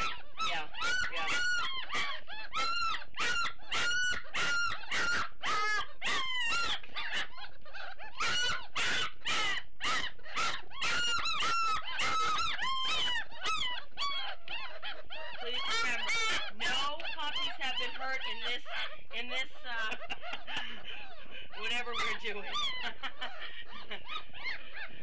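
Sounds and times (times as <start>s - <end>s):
puppies whining and crying: 0.0s - 25.0s.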